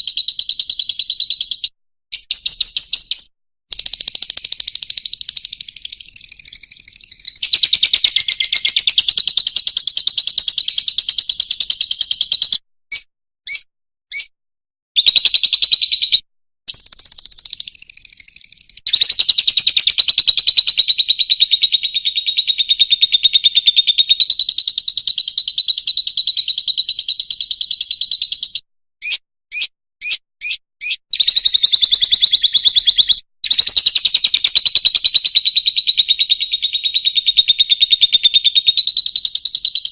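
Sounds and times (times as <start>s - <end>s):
short bird chirps: 0.0s - 14.3s, 15.0s - 39.9s
lovebird twittering: 0.2s - 14.3s, 15.0s - 39.9s.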